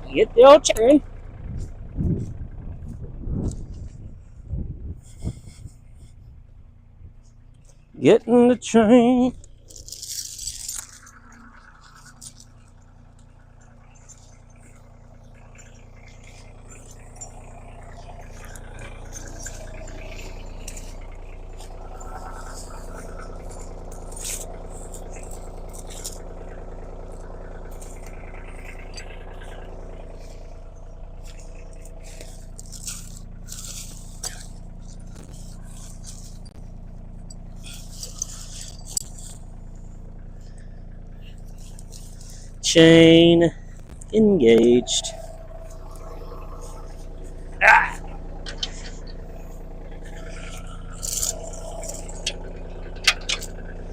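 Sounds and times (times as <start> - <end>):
machine engine running: 6.8 - 53.9
scrapes rattles and clicks: 7.2 - 43.0, 43.6 - 53.9.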